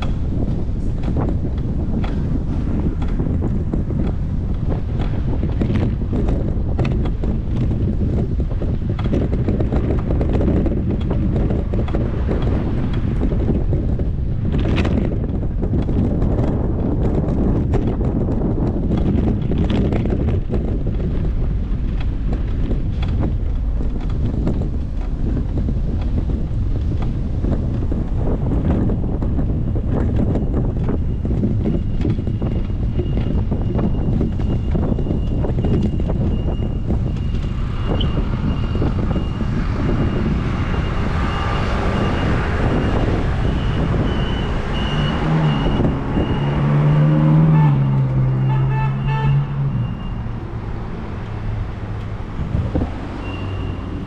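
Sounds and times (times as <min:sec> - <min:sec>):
road traffic: 0:00.0 - 0:54.0
vehicle engine humming: 0:00.0 - 0:54.0
wind buffeting microphone: 0:00.0 - 0:54.0
faint high beep: 0:53.2 - 0:53.8.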